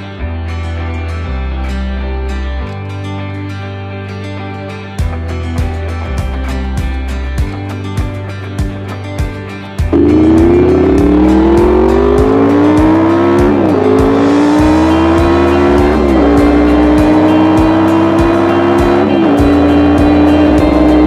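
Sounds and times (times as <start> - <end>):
music with steady beat: 4.6 - 21.0
motorcycle engine accelerating: 9.9 - 21.0.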